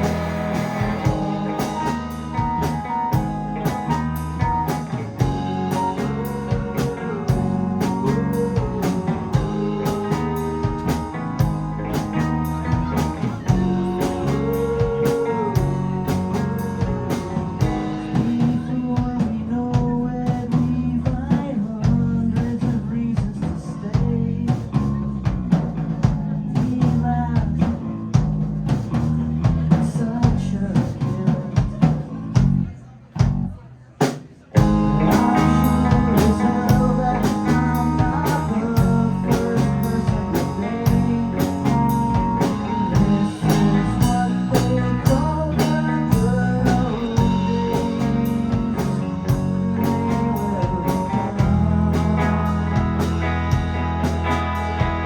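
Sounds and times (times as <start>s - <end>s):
electric guitar: 0.0s - 19.2s, 34.6s - 55.0s
drum kit beat: 0.0s - 24.7s, 33.2s - 55.0s
bass guitar: 0.0s - 55.0s
keyboards: 0.0s - 55.0s.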